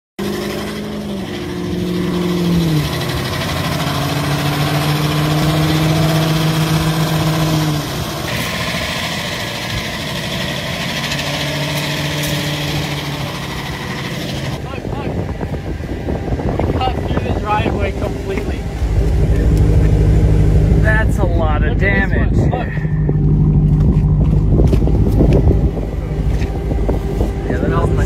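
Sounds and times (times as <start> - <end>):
wheels spinning on wet snow: 0.2 - 14.6
car engine at high revs: 0.2 - 28.0.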